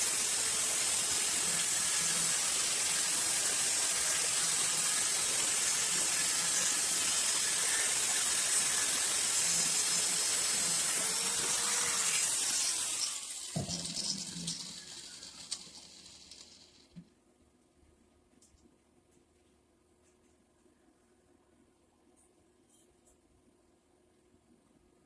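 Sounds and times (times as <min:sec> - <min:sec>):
power tool spinning and winding down: 0:00.0 - 0:17.0.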